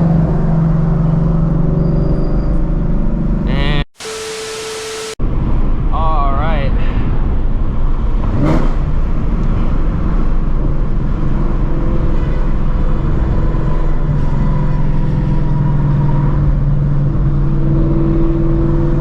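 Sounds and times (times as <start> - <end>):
car engine exhaust drone: 0.1 - 5.9.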